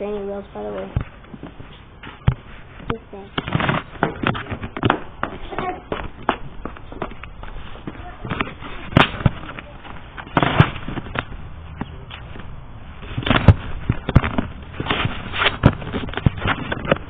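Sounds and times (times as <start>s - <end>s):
sharp knocks and bangs: 13.2s - 17.0s.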